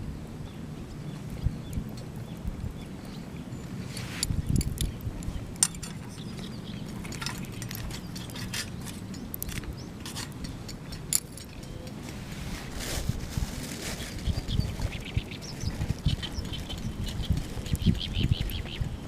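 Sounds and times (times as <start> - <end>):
low wind rumble on microphone: 0.0 - 19.0
metallic clicks and clinks: 5.6 - 12.0.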